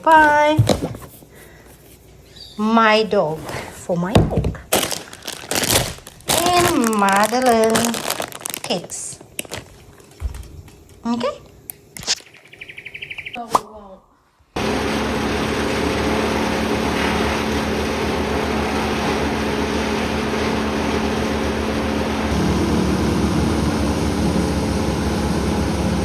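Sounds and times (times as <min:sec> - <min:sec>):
engine running hum: 0:14.6 - 0:26.0.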